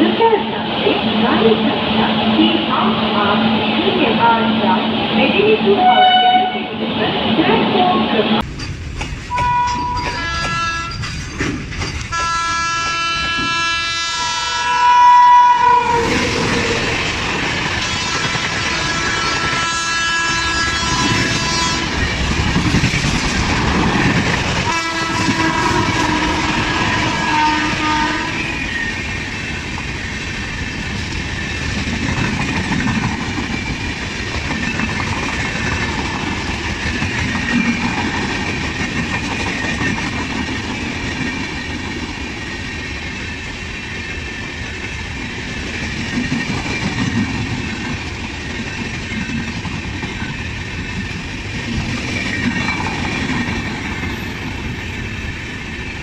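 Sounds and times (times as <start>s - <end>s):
train horn: 5.7s - 6.7s, 9.3s - 11.0s, 12.1s - 16.8s, 18.0s - 22.0s, 24.7s - 28.5s
wheels clacking over rail joints: 8.4s - 13.6s.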